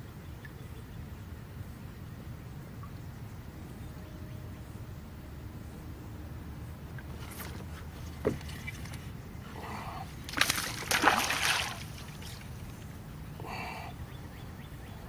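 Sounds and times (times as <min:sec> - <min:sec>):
water splashing beside kayak: 0:06.9 - 0:13.0.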